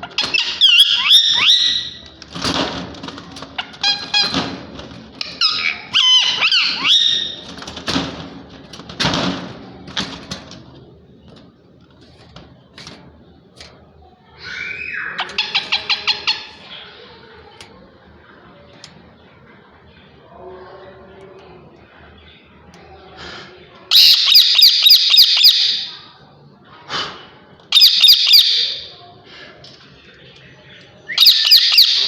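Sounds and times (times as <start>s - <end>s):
parakeets calling: 5.4s - 7.4s, 14.5s - 17.4s, 23.9s - 26.0s, 31.2s - 32.0s.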